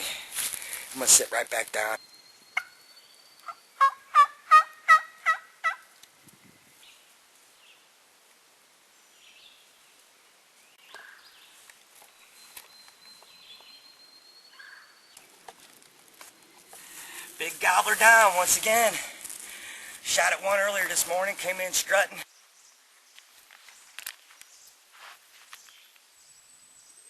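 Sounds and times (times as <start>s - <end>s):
turkey yelps: 3.5s - 5.8s
faint rustling: 15.2s - 21.5s.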